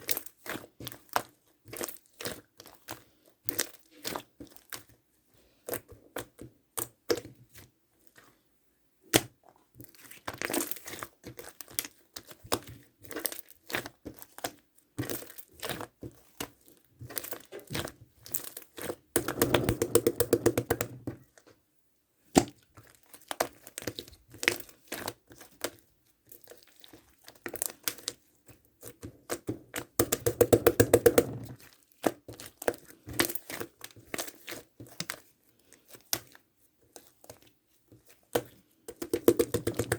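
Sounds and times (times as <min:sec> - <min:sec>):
slime crackling and popping: 0:09.1 - 0:21.0.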